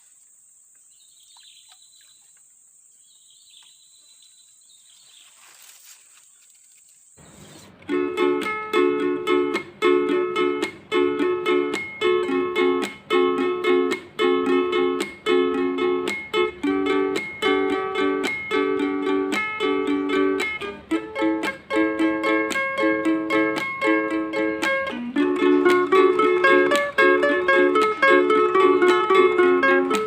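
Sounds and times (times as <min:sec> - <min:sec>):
strummed plucked-string instrument: 0:07.4 - 0:30.0.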